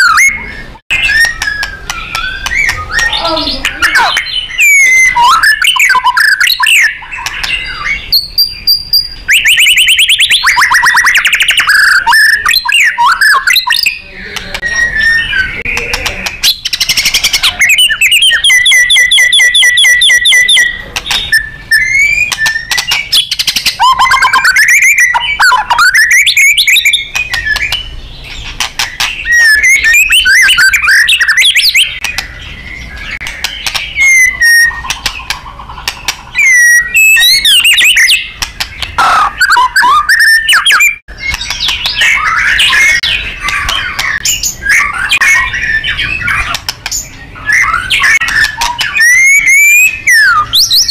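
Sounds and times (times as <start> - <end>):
songbird whistling song: 0.0 - 50.9
bird clicks and ticks: 6.0 - 7.6, 27.0 - 32.4, 33.0 - 39.0, 41.2 - 42.2, 43.4 - 44.4, 46.4 - 47.1, 48.2 - 49.0.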